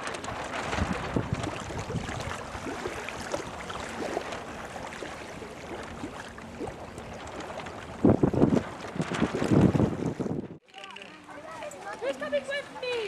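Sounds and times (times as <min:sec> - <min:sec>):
wind buffeting microphone: 0:00.0 - 0:04.1, 0:07.2 - 0:10.6
water lapping and splashing: 0:00.0 - 0:13.0.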